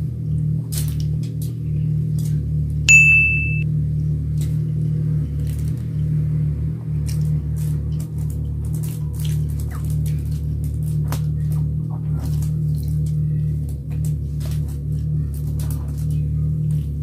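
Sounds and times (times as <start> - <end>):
bright ding sound effect: 2.9 - 3.6.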